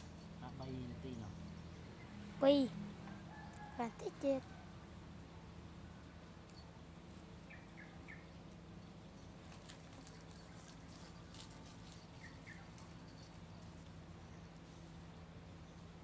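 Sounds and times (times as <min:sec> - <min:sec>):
small bird chirping: 0:07.4 - 0:09.3, 0:12.0 - 0:13.6.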